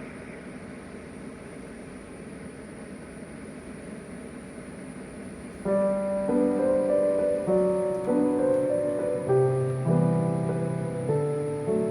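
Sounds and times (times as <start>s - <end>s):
steady hiss: 0.0s - 11.9s
soft piano music: 5.6s - 11.9s.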